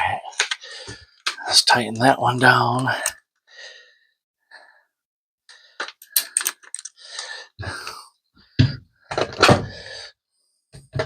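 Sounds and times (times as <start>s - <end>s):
heavy breaths: 0.4s - 1.3s, 3.0s - 9.0s, 9.6s - 10.7s.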